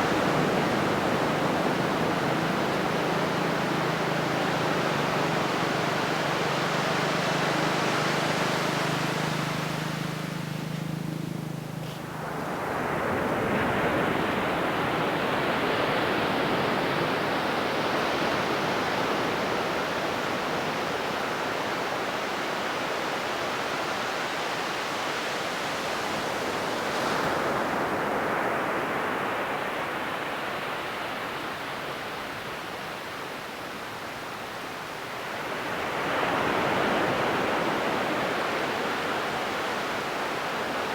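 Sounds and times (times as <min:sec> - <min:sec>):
ocean surf breaking: 0:00.0 - 0:21.2.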